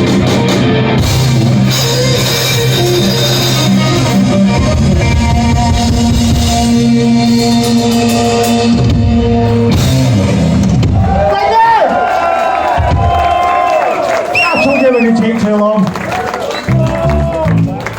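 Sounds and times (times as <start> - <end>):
electric guitar: 0.0 - 11.3
drum kit: 0.0 - 14.9.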